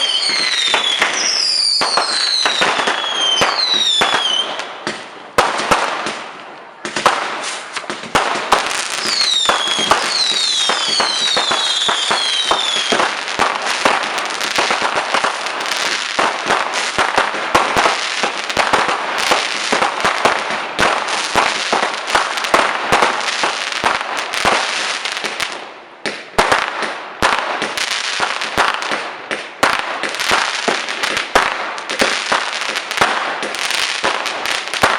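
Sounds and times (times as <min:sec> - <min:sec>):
falling firework whistles: 0:00.0 - 0:04.7, 0:07.3 - 0:08.2, 0:08.8 - 0:14.0
fireworks crackling and banging: 0:00.0 - 0:34.9.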